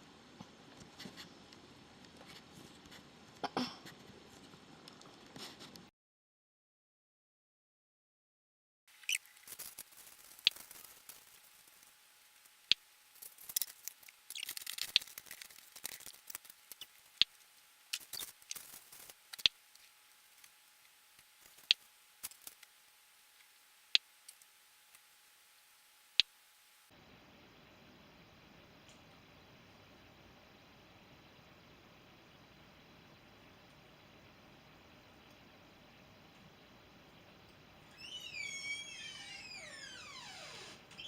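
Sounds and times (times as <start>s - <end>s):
rustling: 9.0s - 23.6s.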